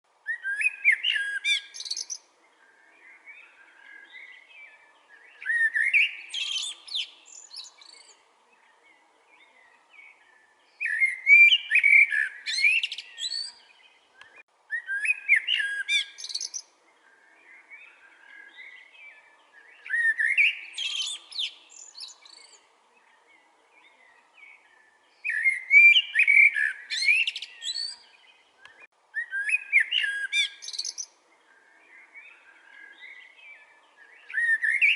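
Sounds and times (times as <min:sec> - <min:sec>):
blackbird singing: 0:00.2 - 0:34.9.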